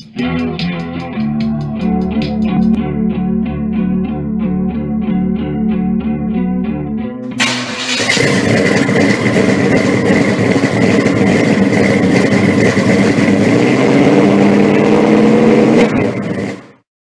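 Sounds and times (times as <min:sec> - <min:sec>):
car engine running: 0:07.2 - 0:16.8.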